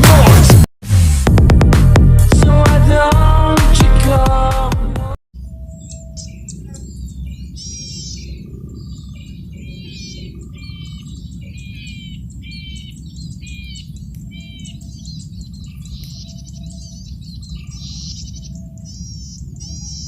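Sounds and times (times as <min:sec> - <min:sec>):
bird singing high notes: 0:05.4 - 0:20.0
low background rumble: 0:05.7 - 0:20.0.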